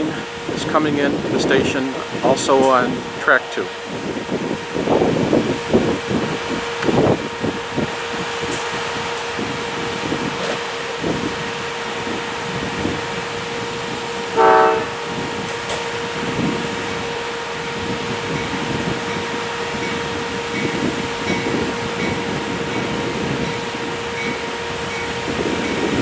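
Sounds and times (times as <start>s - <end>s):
steady hum: 0.0s - 26.0s
train rolling in: 0.0s - 26.0s
train horn blast: 6.5s - 26.0s.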